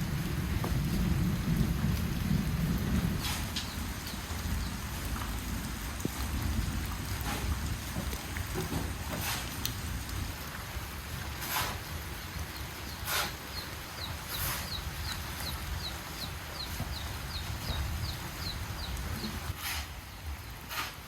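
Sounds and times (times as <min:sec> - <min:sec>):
chickens peeping: 0:12.9 - 0:19.4.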